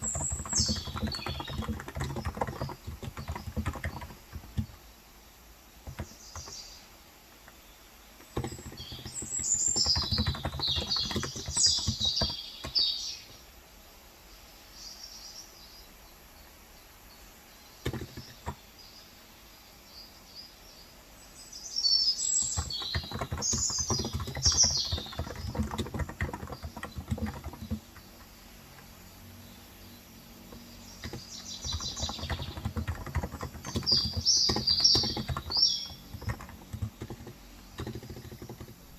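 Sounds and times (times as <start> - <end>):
typing on keyboard: 0.0 - 4.9, 5.8 - 6.7, 8.2 - 12.9, 17.8 - 18.6, 22.4 - 28.9, 30.5 - 38.9
birds chirping: 0.0 - 13.6, 14.8 - 38.9.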